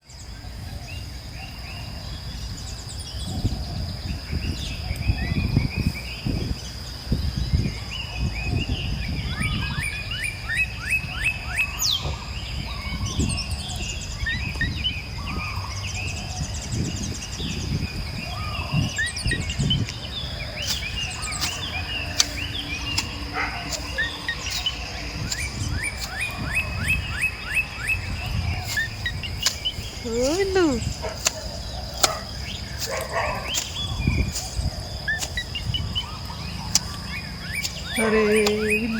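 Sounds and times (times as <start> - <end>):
birds chirping: 8.7 - 38.9
high-pitched insect drone: 20.2 - 38.9.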